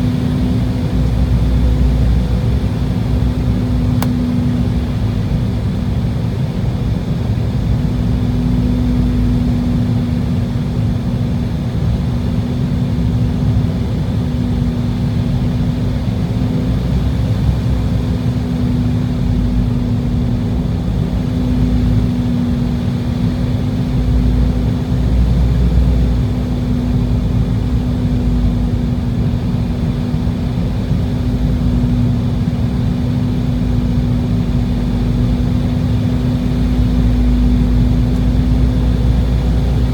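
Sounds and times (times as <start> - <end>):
jet engines rumbling: 17.7 - 39.9.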